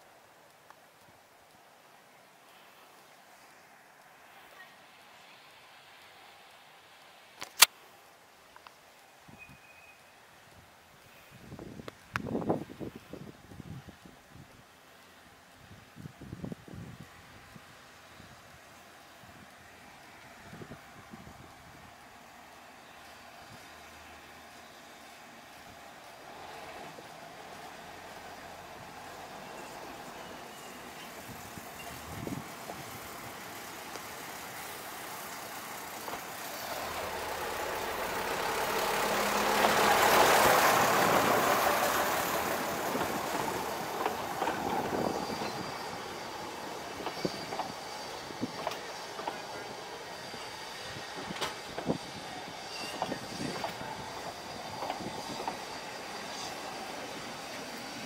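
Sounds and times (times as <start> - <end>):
locomotive passing: 17.0 - 58.0
train wheels clicking over rail joints: 22.9 - 58.0.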